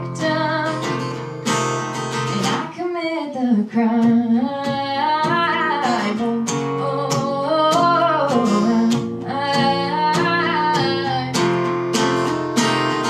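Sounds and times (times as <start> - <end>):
woman singing: 0.0 - 1.6, 2.2 - 12.0
acoustic guitar strumming: 0.0 - 13.0.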